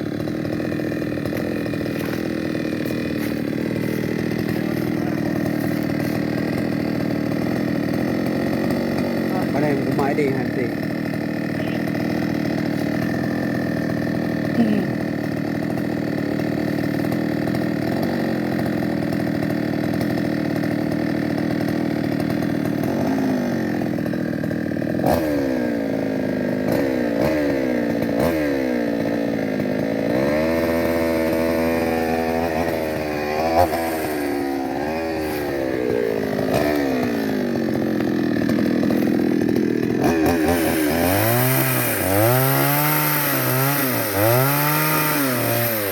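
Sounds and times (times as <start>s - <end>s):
chainsaw engine idling and revving: 0.0s - 45.9s.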